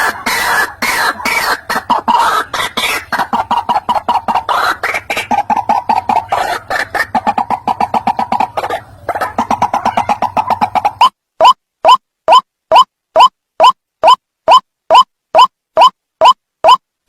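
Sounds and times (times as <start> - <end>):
waterhen calling: 0.0 - 16.8.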